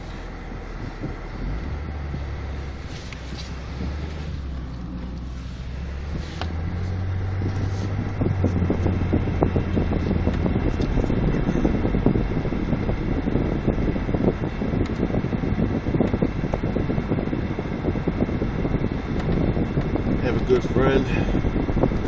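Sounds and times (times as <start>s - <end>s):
vehicle engine driving through snow: 0.0s - 15.1s.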